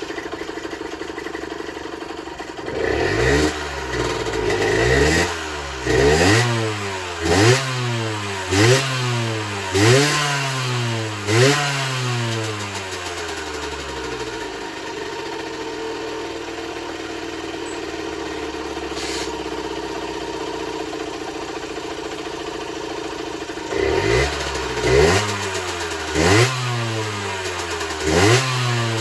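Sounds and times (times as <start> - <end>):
two-stroke engine idling: 0.0 - 29.0
engine revving: 2.6 - 14.9, 18.1 - 21.2, 23.4 - 29.0.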